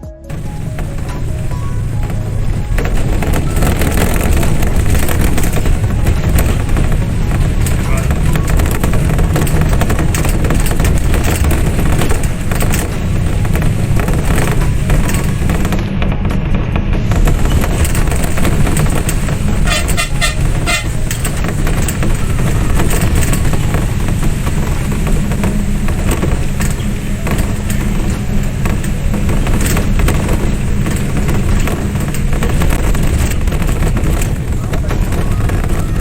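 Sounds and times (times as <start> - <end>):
pulsing horn tone: 0.0 - 32.0
loud low rumble: 0.1 - 36.0.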